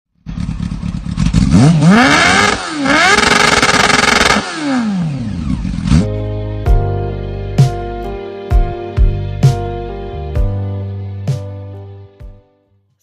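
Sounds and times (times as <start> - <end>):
motorcycle engine revving: 0.2 - 6.2
music: 5.9 - 13.0.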